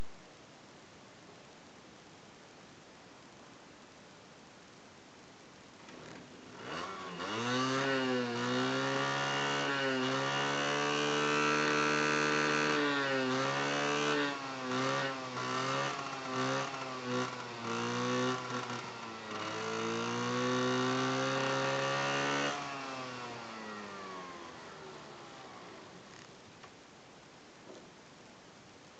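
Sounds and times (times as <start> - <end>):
scooter engine revving: 6.5 - 26.0.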